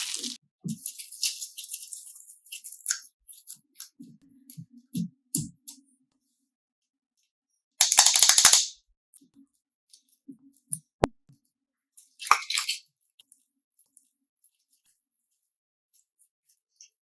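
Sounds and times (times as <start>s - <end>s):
slime crackling and clicking: 7.8s - 8.7s.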